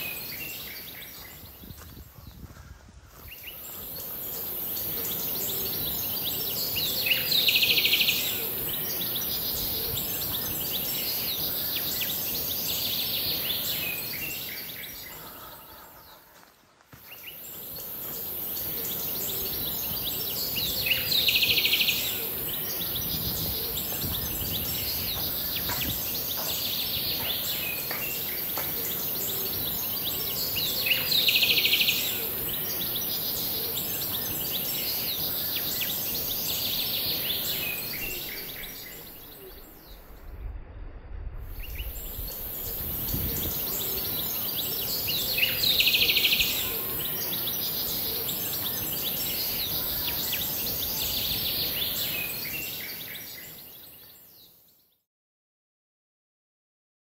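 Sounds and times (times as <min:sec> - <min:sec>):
background hiss: 0:00.0 - 0:54.5
low rumble: 0:39.4 - 0:43.6.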